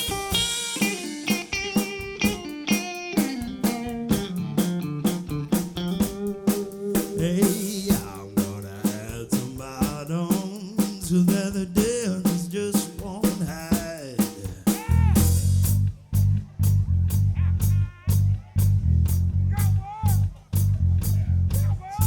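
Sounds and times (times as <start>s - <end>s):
heavy bass line: 0.0s - 2.1s, 3.5s - 10.4s, 14.6s - 22.0s
pitch-bending lead line: 0.0s - 10.0s
drum kit snare and rimshots: 0.0s - 22.0s.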